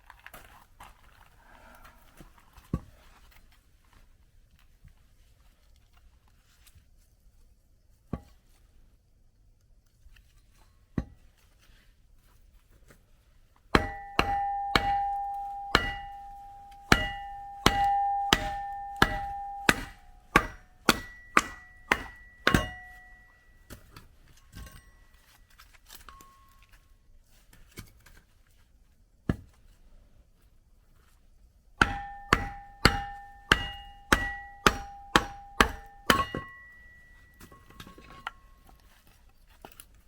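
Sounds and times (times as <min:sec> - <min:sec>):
steel striking steel: 0:13.8 - 0:23.5, 0:31.8 - 0:37.7
ringing metallic blows: 0:13.8 - 0:23.6, 0:31.8 - 0:37.8.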